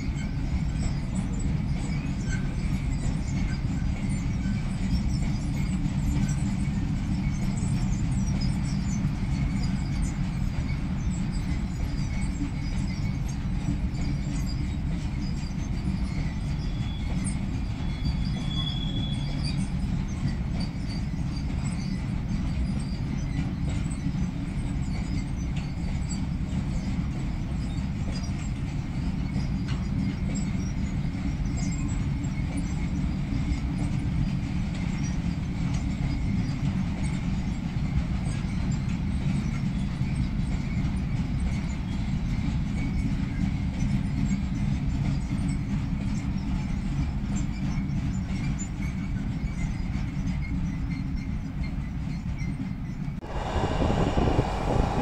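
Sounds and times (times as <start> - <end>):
thin high squeal: 17.8 - 19.6
freight wagons rumbling: 53.2 - 55.0.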